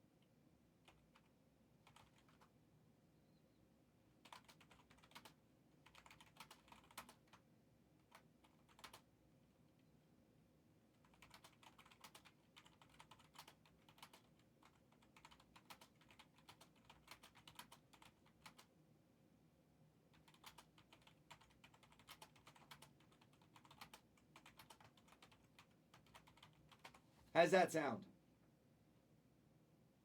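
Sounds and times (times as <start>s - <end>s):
faint keyboard typing: 0.1s - 2.6s, 4.1s - 9.2s, 10.9s - 18.8s, 20.0s - 27.2s.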